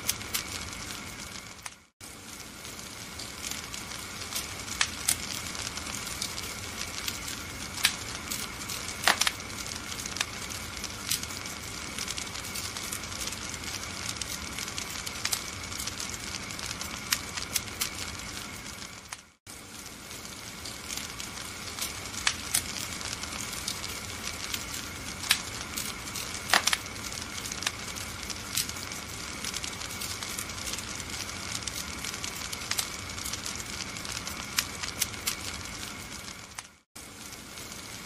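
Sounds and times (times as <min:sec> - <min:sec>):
wood fire hissing and crackling: 0:00.0 - 0:38.0.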